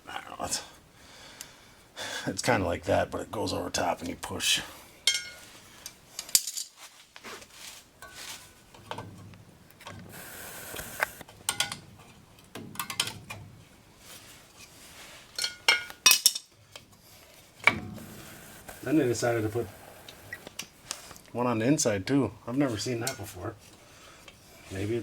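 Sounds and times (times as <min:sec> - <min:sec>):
metal scrape: 0:17.1 - 0:21.2.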